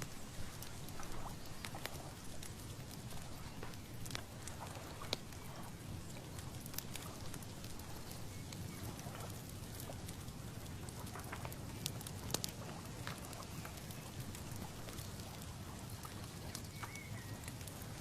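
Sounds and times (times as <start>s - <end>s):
low rumble of breeze: 0.0s - 18.0s.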